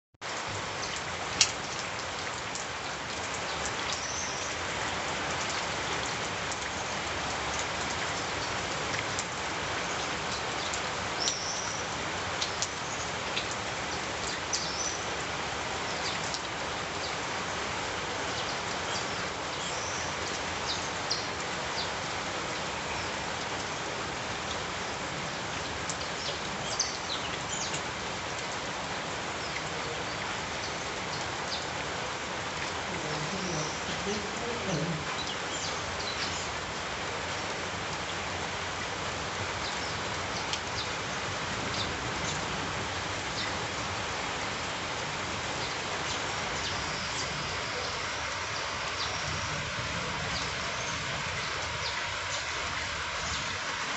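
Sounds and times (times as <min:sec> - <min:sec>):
rain falling on a street: 0:00.2 - 0:53.9
drops and drips clicking: 0:00.8 - 0:04.2, 0:12.4 - 0:13.6.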